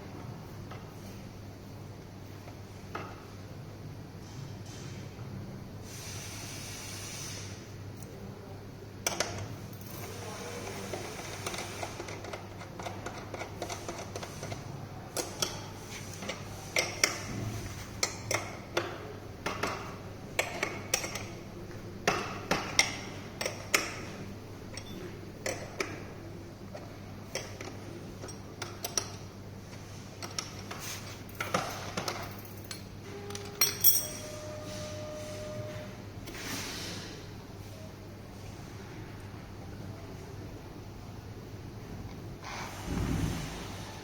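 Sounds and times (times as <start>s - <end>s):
small tools clicking and tapping: 11.0s - 14.6s, 18.0s - 21.3s, 26.7s - 34.2s.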